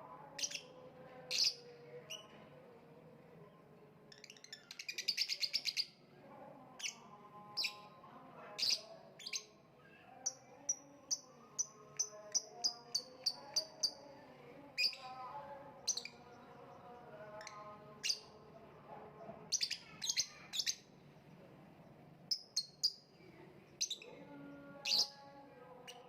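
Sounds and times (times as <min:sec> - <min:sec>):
lovebird chirping: 0:04.1 - 0:05.9.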